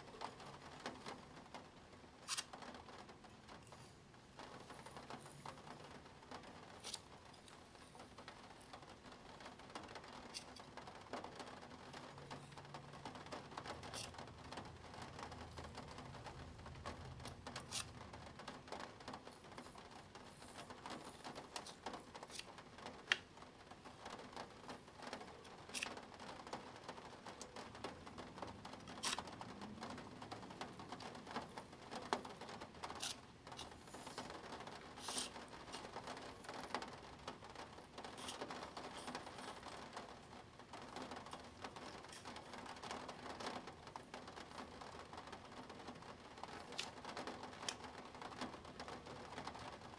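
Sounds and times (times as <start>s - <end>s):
plastic gear clicking and scratching: 2.2s - 2.9s, 12.3s - 23.3s, 24.1s - 40.2s, 46.4s - 49.8s.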